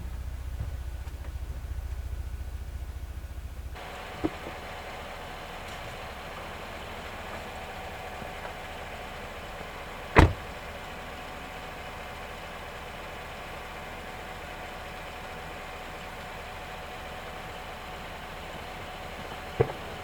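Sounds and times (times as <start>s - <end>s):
pickup truck idling: 0.0s - 20.0s
loud thump: 0.5s - 1.2s, 10.2s - 10.5s.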